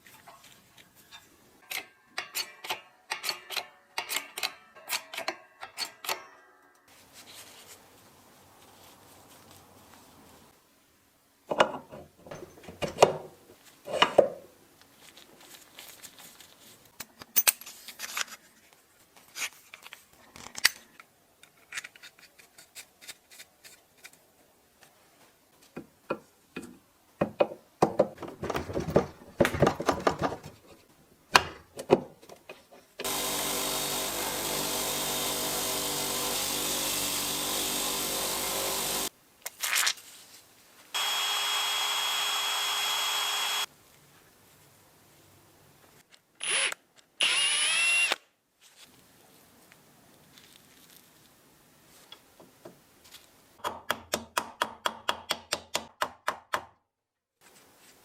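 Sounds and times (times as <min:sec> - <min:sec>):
power tool running: 0:33.0 - 0:39.1, 0:41.0 - 0:43.7.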